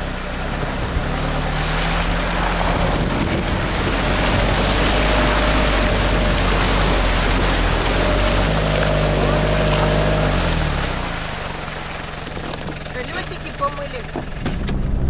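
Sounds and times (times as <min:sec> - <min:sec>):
boat engine drone: 0:00.0 - 0:15.0
rushing water: 0:00.0 - 0:15.0
wind on microphone: 0:00.6 - 0:09.4, 0:14.2 - 0:15.0.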